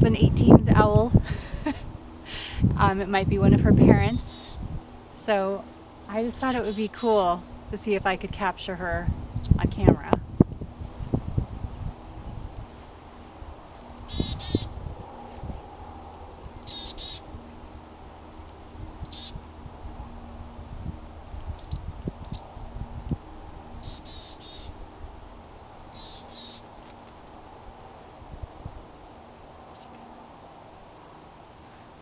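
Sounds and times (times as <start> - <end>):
songbird chirping and buzzing: 1.9 - 10.0, 10.9 - 26.8, 29.6 - 30.1.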